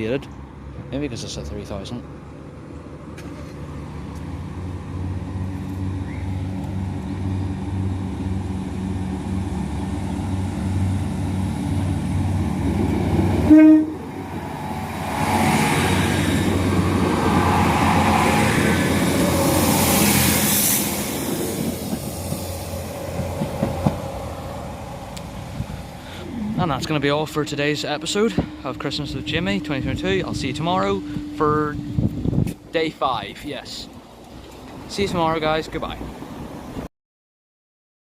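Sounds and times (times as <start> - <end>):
train engine rumble: 0.0 - 36.9
wheel and rail noise: 2.0 - 36.9
train horn toot: 13.4 - 14.1, 27.2 - 31.5.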